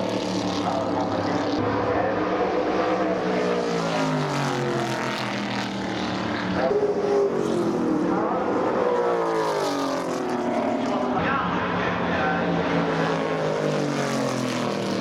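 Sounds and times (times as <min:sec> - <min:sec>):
race cars passing at speed: 0:00.0 - 0:15.0.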